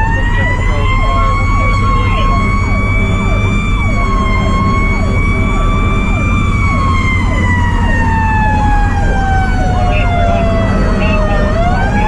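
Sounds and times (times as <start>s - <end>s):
fainter sweeping siren: 0.0s - 12.0s
fire truck engine rumble: 0.0s - 12.0s
mechanical siren screaming: 0.0s - 12.0s.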